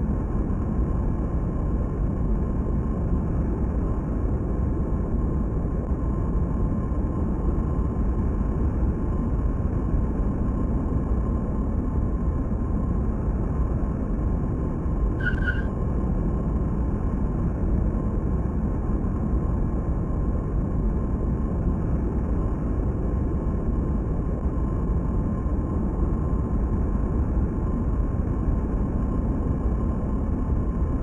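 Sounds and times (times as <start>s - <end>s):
brief high chirp: 15.2s - 15.7s.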